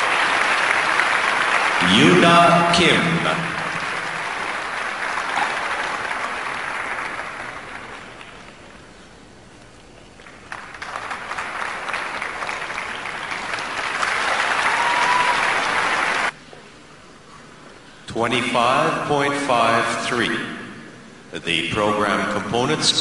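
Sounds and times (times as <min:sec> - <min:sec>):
audience applauding: 0:00.0 - 0:08.8, 0:10.2 - 0:16.4.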